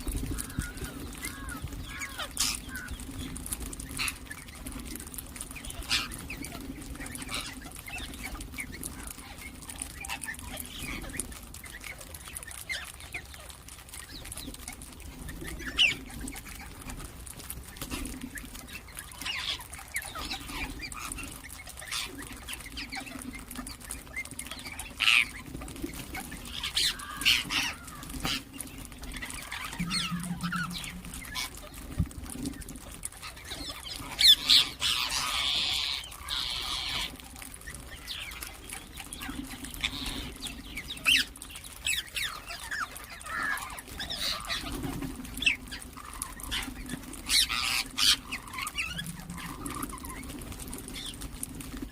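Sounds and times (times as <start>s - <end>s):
parakeets chirping: 0.0s - 17.0s, 17.8s - 51.8s
low drone: 28.8s - 32.4s.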